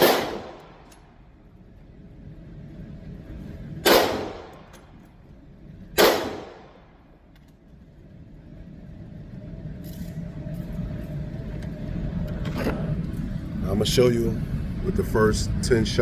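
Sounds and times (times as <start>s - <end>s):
pistol shots echoing: 0.0s - 0.9s, 3.8s - 4.7s, 6.0s - 6.8s.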